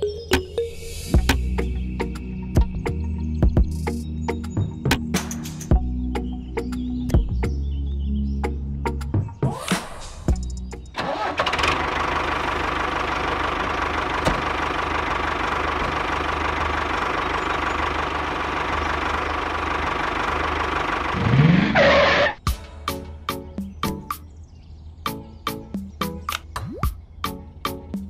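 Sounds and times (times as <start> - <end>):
tractor engine running: 10.6 - 22.4.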